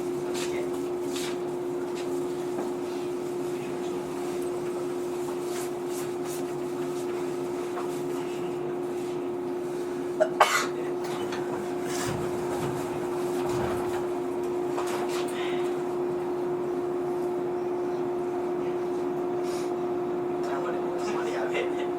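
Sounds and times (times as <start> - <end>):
train equipment humming: 0.0 - 21.9
person coughing: 10.2 - 10.9.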